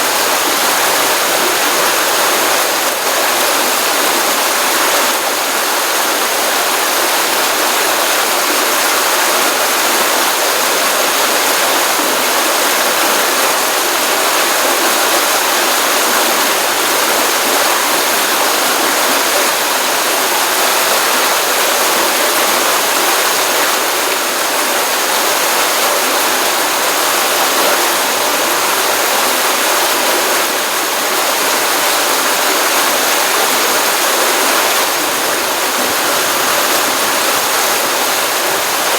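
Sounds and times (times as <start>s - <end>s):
stream water rushing and splashing: 0.0s - 38.9s.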